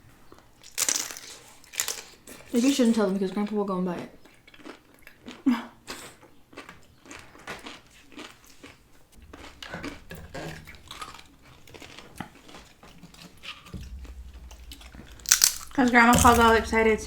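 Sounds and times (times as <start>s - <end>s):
crunching crisp tortilla: 0.7s - 2.6s, 4.2s - 15.8s
wet chewing: 4.2s - 17.0s.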